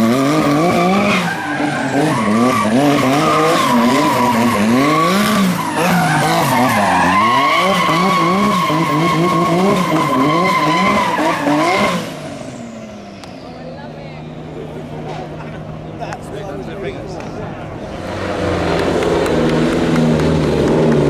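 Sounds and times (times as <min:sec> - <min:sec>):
car engine revving: 0:00.0 - 0:15.9, 0:17.2 - 0:21.0
tyres squealing: 0:00.6 - 0:11.9.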